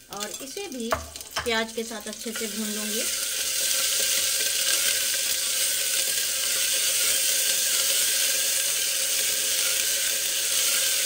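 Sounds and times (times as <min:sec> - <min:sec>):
onions sizzling in hot oil: 0:00.0 - 0:11.0
spatula stirring in pot: 0:00.1 - 0:11.0.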